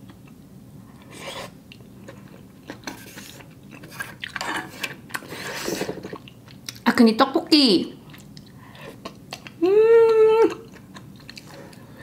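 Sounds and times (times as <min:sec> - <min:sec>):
wet chewing mouth sounds: 0:01.0 - 0:06.9, 0:08.0 - 0:09.6, 0:10.5 - 0:12.0.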